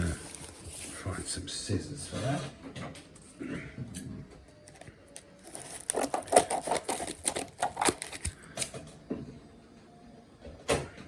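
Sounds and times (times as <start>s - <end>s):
packaging crinkling and tearing: 4.6s - 8.8s.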